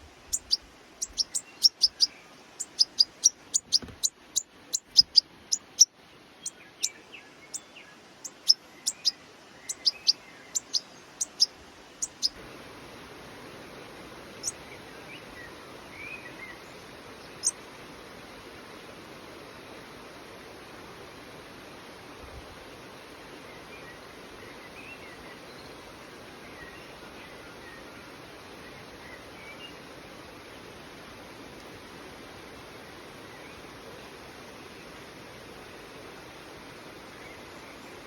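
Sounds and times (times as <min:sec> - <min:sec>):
young bird chirping: 0:00.0 - 0:12.4, 0:14.4 - 0:14.6, 0:17.3 - 0:17.6
steady hiss: 0:00.0 - 0:38.0.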